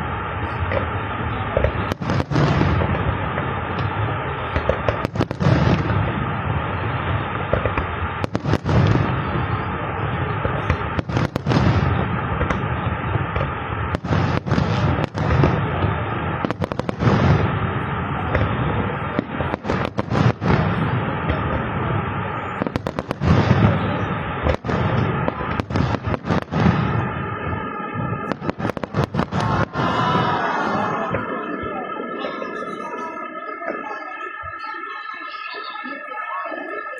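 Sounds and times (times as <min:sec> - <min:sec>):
fireworks bangs and crackle: 0:00.0 - 0:36.9
sharp firework bursts: 0:00.0 - 0:36.9.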